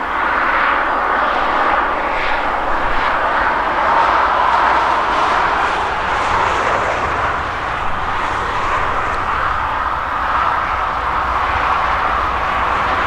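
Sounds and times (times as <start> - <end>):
harvest machinery droning: 3.6 - 13.0.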